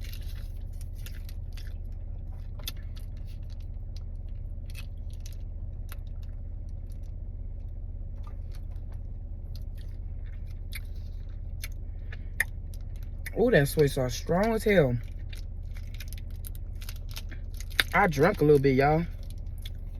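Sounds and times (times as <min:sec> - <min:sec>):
person chewing food: 0:00.0 - 0:07.1, 0:08.1 - 0:13.4, 0:15.0 - 0:18.0
steady low hum: 0:00.0 - 0:19.9.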